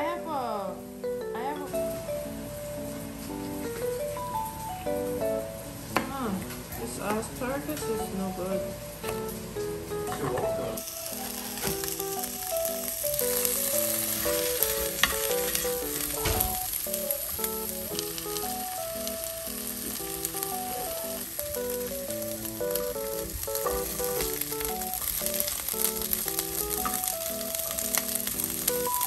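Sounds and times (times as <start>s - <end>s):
food sizzling in a frying pan: 0.0s - 29.0s
soft background music: 0.0s - 29.0s
chopsticks tapping: 13.4s - 19.2s, 20.3s - 27.2s.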